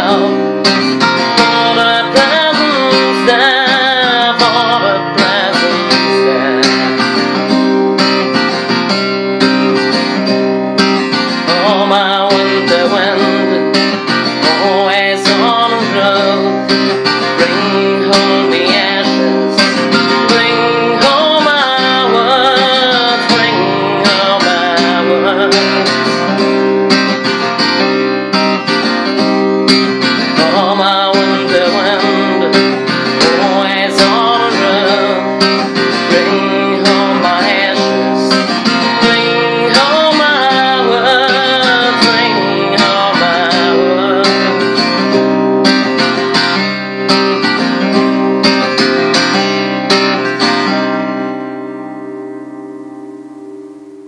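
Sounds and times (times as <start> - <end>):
acoustic guitar music: 0.0 - 54.0.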